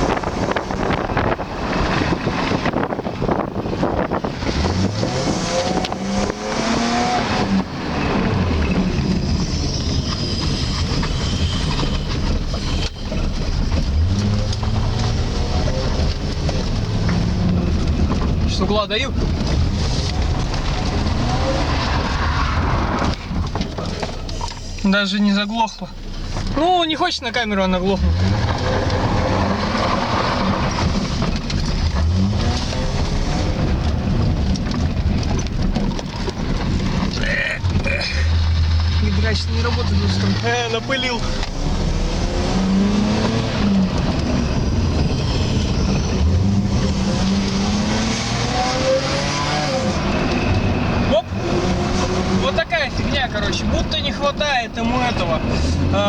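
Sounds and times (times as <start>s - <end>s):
car engine while driving: 0.0s - 56.0s.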